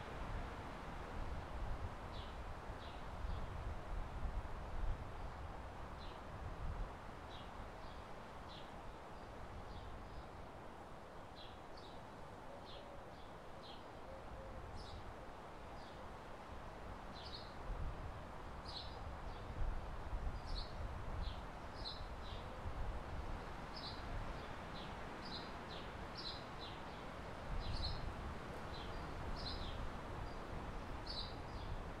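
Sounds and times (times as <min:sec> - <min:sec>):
wind rumble on microphone: 0:00.0 - 0:08.0, 0:16.7 - 0:32.0.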